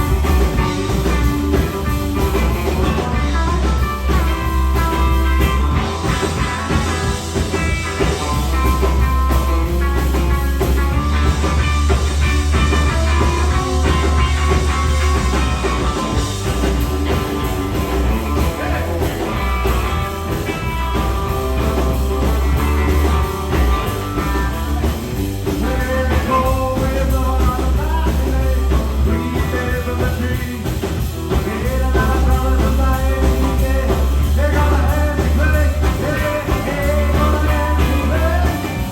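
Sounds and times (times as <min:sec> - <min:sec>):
drum kit: 0:00.0 - 0:38.9
electric bass: 0:00.0 - 0:38.9
electric guitar: 0:00.0 - 0:38.9.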